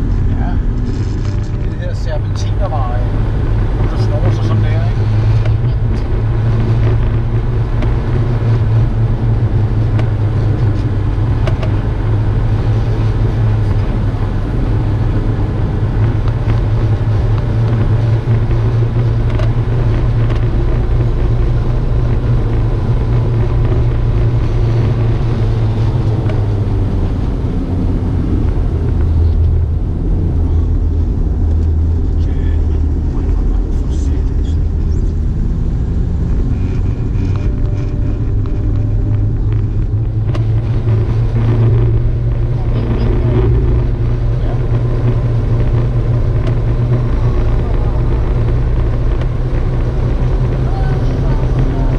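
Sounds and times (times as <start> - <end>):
car engine and tyre drone: 0.0 - 51.9.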